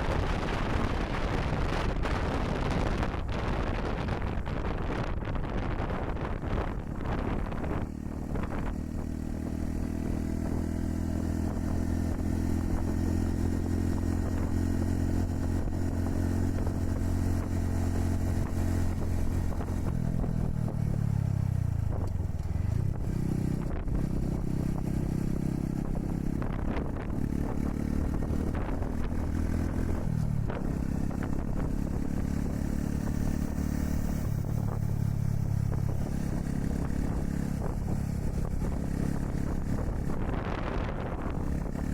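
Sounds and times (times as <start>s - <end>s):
motorcycle engine running: 0.0s - 41.9s
wind rushing over microphone: 0.0s - 41.9s.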